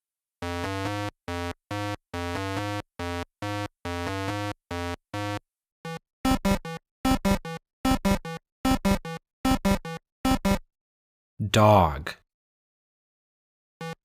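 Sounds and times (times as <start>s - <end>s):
synthesizer melody: 0.4s - 10.6s.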